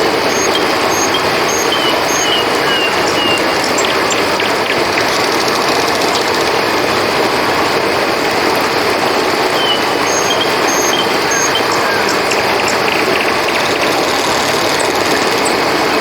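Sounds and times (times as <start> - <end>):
river water rushing: 0.0 - 16.0
small animal chirping: 0.3 - 6.4.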